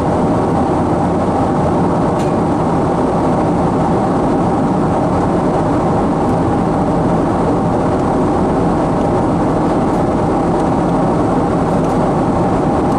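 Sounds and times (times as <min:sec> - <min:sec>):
airplane cabin engine and airflow noise: 0:00.0 - 0:12.9.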